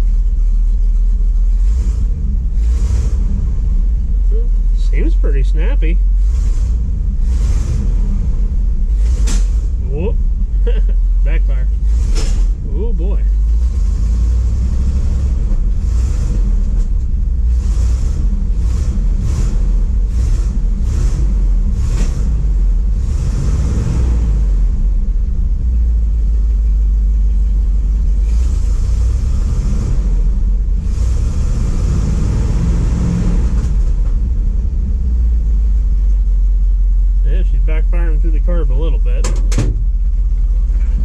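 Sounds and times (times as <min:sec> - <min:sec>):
truck engine running rough: 0:00.0 - 0:41.0
engine backfire pops: 0:08.8 - 0:09.8, 0:11.8 - 0:12.6, 0:18.0 - 0:22.5, 0:39.2 - 0:41.0.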